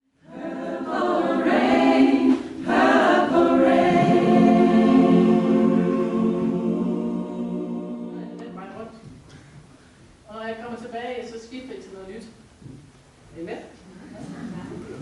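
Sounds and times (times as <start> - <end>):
choir singing held chords: 0.2 - 8.8.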